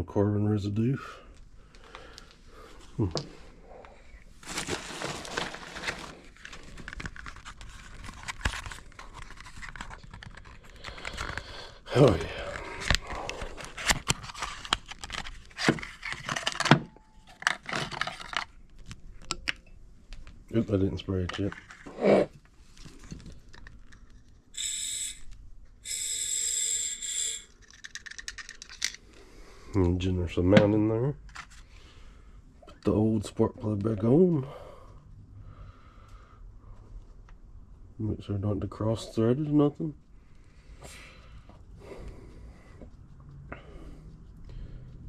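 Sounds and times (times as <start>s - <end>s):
hands handling tools and parts: 4.4s - 29.1s.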